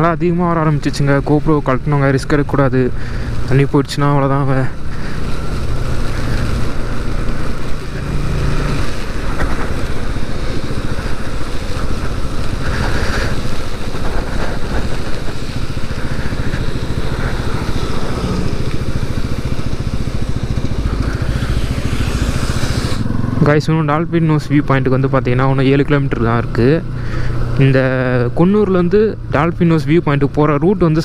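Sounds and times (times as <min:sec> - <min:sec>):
motorcycle engine running: 0:00.0 - 0:31.0
wind noise: 0:04.7 - 0:23.4.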